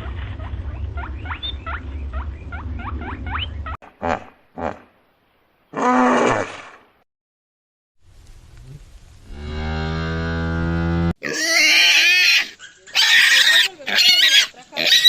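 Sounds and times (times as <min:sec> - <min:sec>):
low rumble: 0:00.0 - 0:03.8
animal squeaks and calls: 0:11.2 - 0:15.0.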